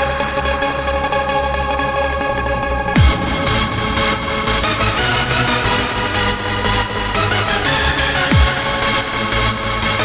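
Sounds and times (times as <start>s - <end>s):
electronic dance music: 2.8s - 7.4s.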